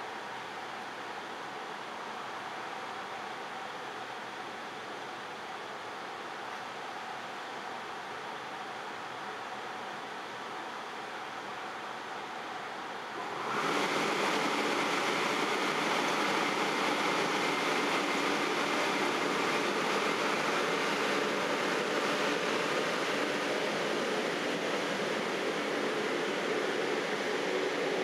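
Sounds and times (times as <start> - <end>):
electric train running gear noise: 13.2 - 28.0.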